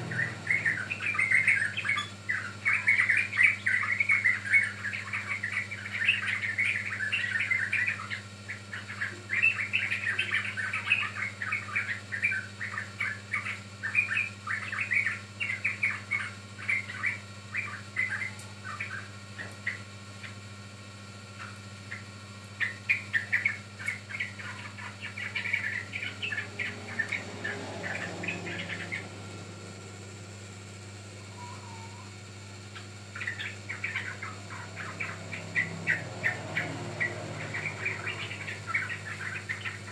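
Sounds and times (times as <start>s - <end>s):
bird chirping: 0.0s - 20.4s, 21.3s - 30.4s, 31.1s - 32.1s, 32.7s - 39.9s
steady low hum: 0.0s - 39.9s.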